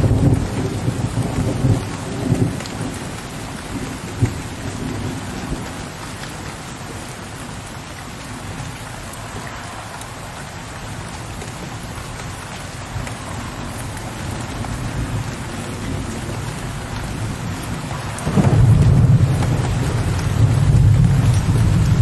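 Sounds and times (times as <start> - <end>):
low rumble of thunder: 0.0 - 6.5, 11.0 - 22.0
steady rain: 0.0 - 22.0.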